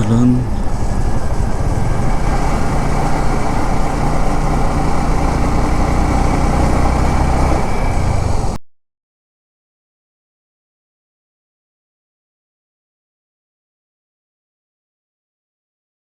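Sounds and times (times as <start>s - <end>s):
motorcycle engine running: 0.0s - 8.6s
road and wind noise: 0.0s - 8.6s.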